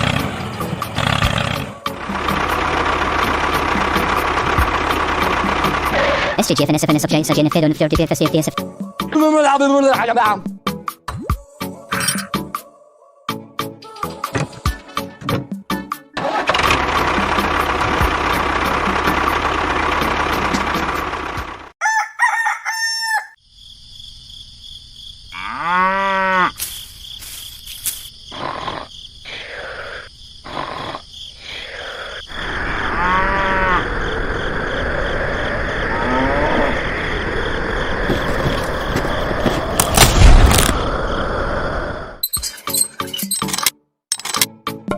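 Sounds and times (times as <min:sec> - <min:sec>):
rooster crowing: 0:21.8 - 0:23.4.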